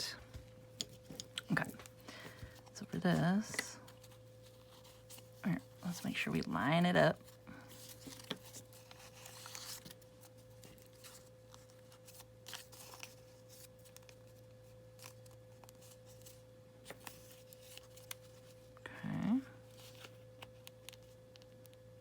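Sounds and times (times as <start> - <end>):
steady low hum: 0.0 - 22.0
paper rustling and clicking: 7.2 - 14.4, 15.0 - 18.6.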